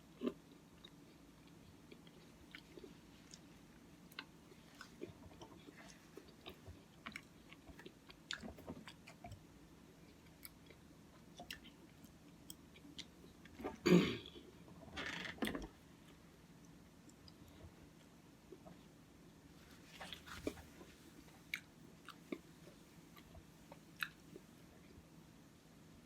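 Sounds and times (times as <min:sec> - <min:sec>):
person chewing: 0:00.1 - 0:09.5, 0:10.1 - 0:13.8, 0:19.9 - 0:24.5.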